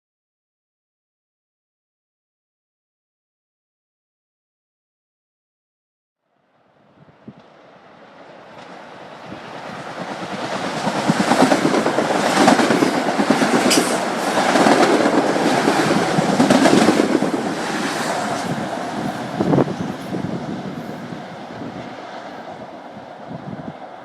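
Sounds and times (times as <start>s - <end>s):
train passing: 6.4s - 24.0s.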